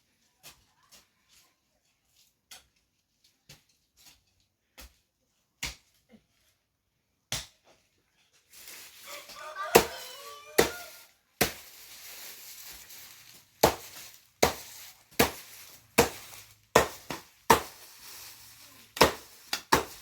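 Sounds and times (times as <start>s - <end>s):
hand hoe chopping into soil: 5.6s - 6.1s, 9.4s - 12.4s, 13.3s - 20.0s.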